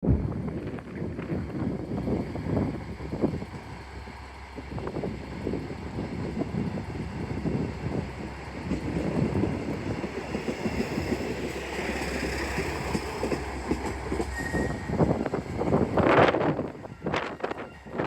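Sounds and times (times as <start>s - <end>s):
diesel railcar running: 0.0s - 18.0s
high wheel squeal: 14.3s - 15.8s.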